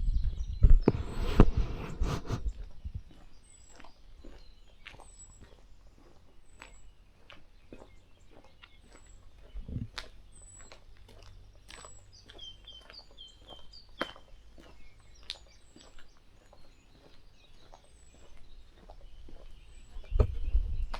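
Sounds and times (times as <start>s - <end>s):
birds whistling and chirping: 0.0s - 20.9s
steady low rumble: 9.5s - 10.0s.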